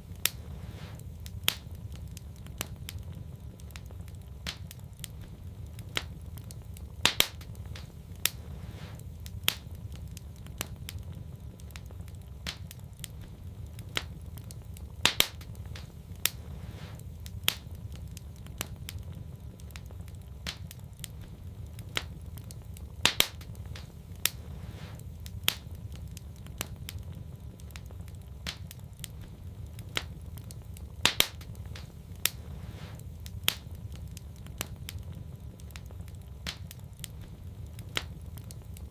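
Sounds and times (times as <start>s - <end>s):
sharp pops of fire: 0.0s - 38.9s
wood fire crackling: 0.0s - 38.9s.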